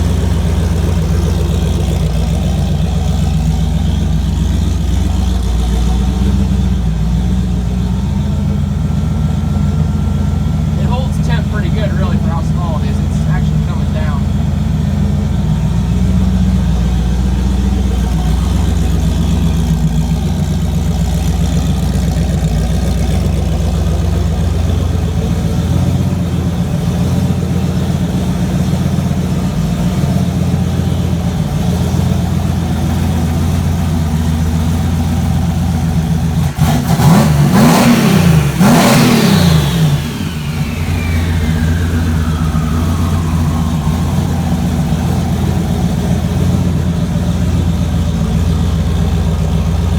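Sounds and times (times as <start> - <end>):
car engine idling and revving: 0.0 - 49.9
turbo whine: 0.0 - 49.9.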